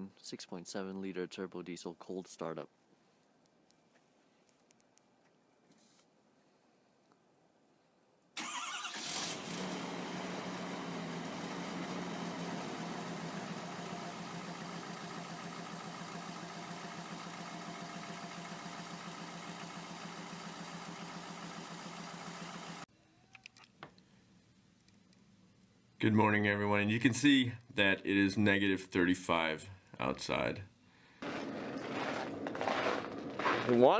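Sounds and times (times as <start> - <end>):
diesel engine starting and idling: 8.4 - 22.9.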